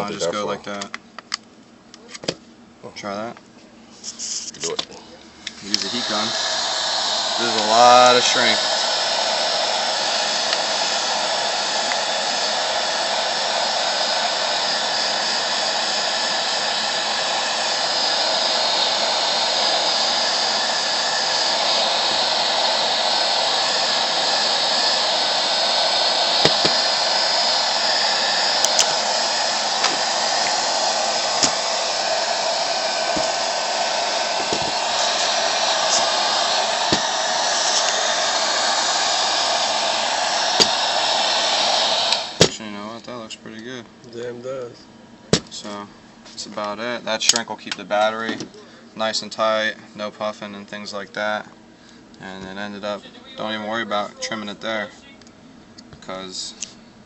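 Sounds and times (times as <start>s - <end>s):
heat gun blowing: 5.5s - 42.9s.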